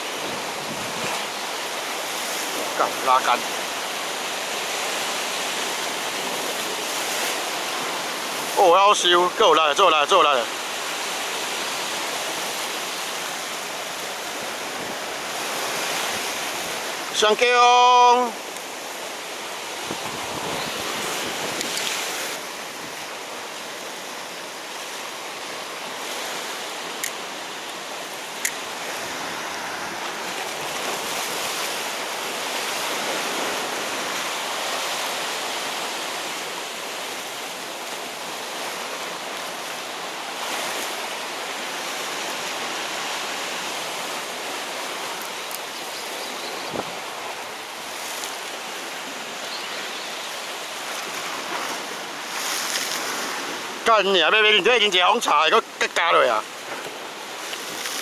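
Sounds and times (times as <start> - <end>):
wind on microphone: 0.0 - 1.3, 19.8 - 23.1, 46.3 - 47.2
waves washing on rocky shore: 0.0 - 58.0.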